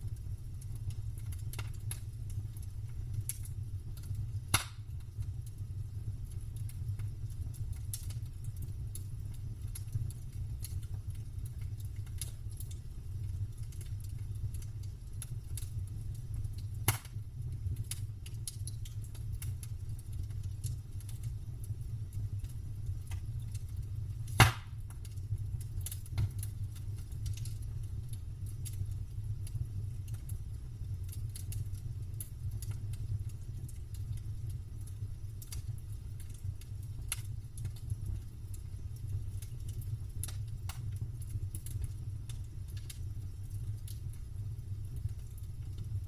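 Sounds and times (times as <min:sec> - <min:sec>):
campfire crackling: 0:00.0 - 0:46.0
steady low rumble: 0:00.0 - 0:46.0
sharp wood pops: 0:04.5 - 0:04.8, 0:16.9 - 0:17.1, 0:24.3 - 0:24.7.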